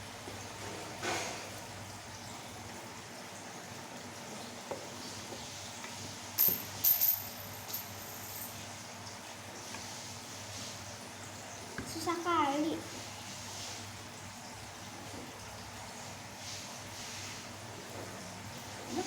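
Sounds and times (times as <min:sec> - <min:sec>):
utensils clinking: 0:06.4 - 0:08.8.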